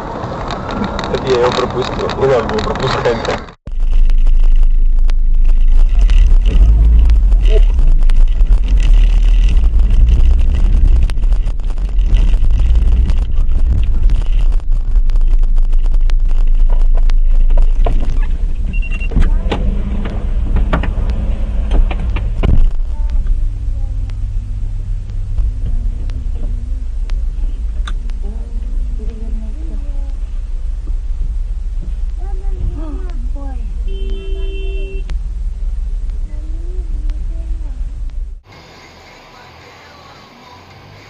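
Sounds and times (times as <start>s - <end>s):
car engine and road rumble: 0.0s - 41.0s
sharp knocks and clicks: 0.4s - 23.4s
low hum: 3.7s - 39.5s.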